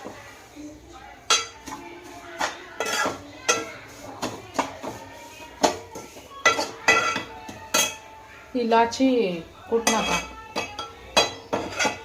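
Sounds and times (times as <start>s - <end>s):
metal utensils clinking: 1.2s - 8.2s, 9.7s - 12.0s.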